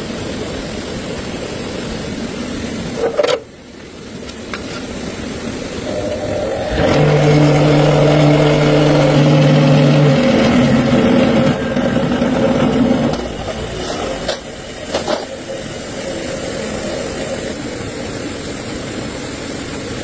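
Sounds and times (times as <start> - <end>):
motor running: 5.8 - 17.8.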